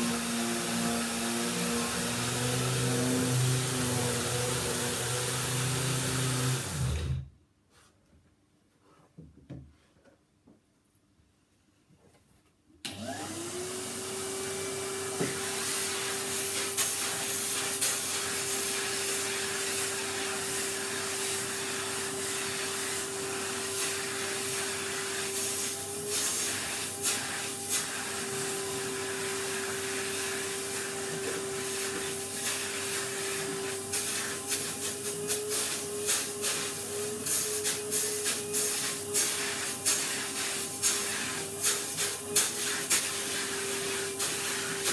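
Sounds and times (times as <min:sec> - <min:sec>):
vacuum cleaner motor whining: 0:00.0 - 0:07.3, 0:12.9 - 0:44.9.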